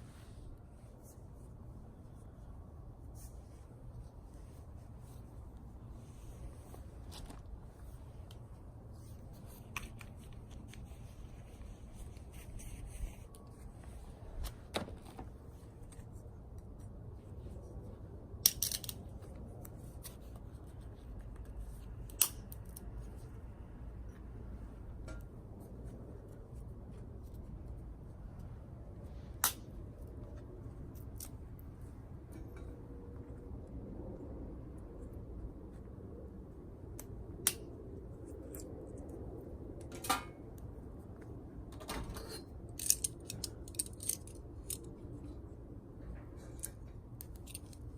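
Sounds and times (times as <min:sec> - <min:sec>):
steady low rumble: 0:00.0 - 0:41.8
light clicks and rustles: 0:36.9 - 0:47.9.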